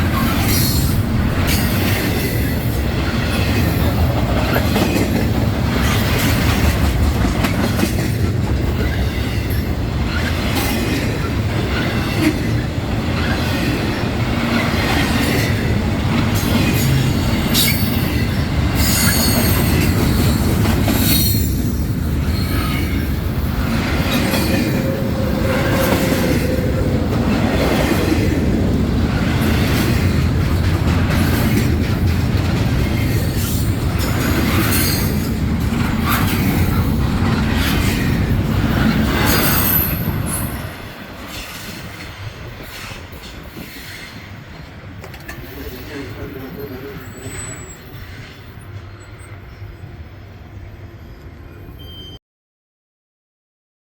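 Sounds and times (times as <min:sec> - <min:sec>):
train wheel squeal: 0:00.0 - 0:02.6, 0:16.4 - 0:23.1, 0:24.1 - 0:27.0, 0:38.7 - 0:50.3, 0:51.0 - 0:52.2
train wheels clickety-clack: 0:00.0 - 0:49.3.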